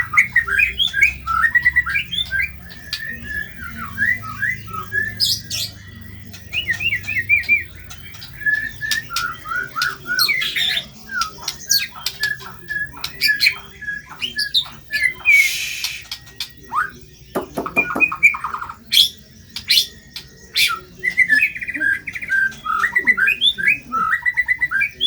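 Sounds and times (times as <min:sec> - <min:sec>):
bird whistling song: 0:00.0 - 0:25.0
harsh rasping bird call: 0:14.5 - 0:16.3
bird clicks: 0:17.4 - 0:18.3.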